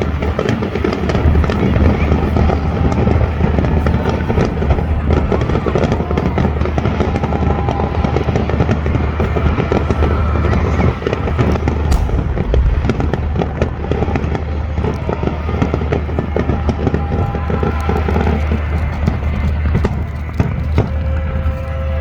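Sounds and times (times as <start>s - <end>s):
fireworks crackling pops: 9.2s - 21.7s
firework boom: 11.7s - 15.4s.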